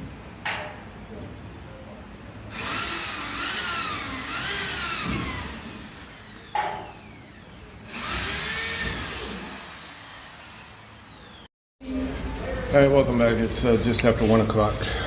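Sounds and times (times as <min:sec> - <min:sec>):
power tool motor revving: 0:02.5 - 0:11.5.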